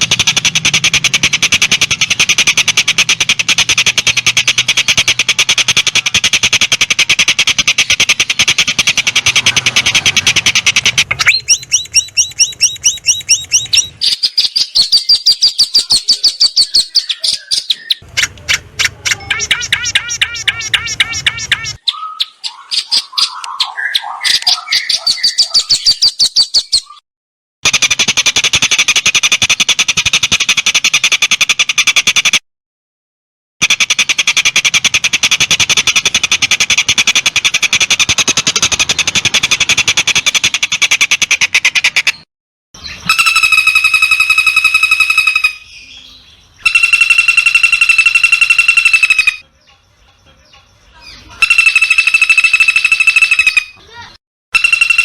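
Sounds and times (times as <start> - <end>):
fast buzzy bird trills: 0.0 - 27.0, 27.6 - 32.4, 33.6 - 45.8, 46.6 - 49.5, 51.2 - 55.0
rapid chattering bird notes: 0.0 - 27.0, 27.6 - 32.4, 33.6 - 45.7, 46.6 - 55.0
high ringing whistle: 43.0 - 45.7, 46.6 - 49.4, 51.4 - 53.8, 54.6 - 55.0.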